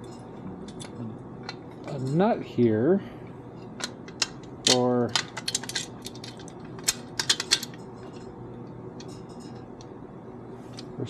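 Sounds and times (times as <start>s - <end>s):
metal hardware clicking and tapping: 3.8s - 8.2s.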